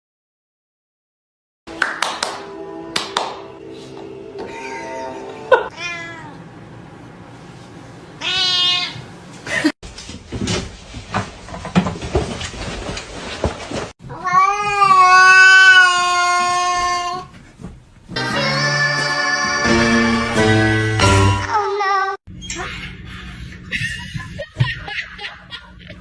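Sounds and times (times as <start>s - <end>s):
cat meowing: 4.5s - 6.4s, 8.2s - 9.0s, 14.2s - 17.2s
cat yowling: 4.5s - 6.4s, 8.2s - 9.0s, 14.2s - 17.2s
knocks and clatter: 10.1s - 13.9s.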